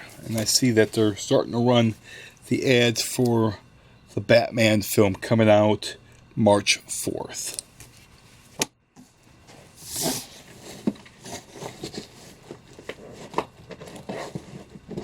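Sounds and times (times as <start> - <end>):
paper rustling: 9.8 - 15.0.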